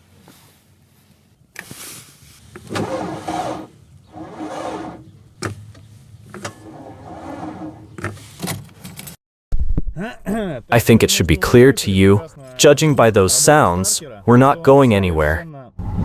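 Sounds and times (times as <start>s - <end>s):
starter clicking and straining: 2.5s - 9.2s.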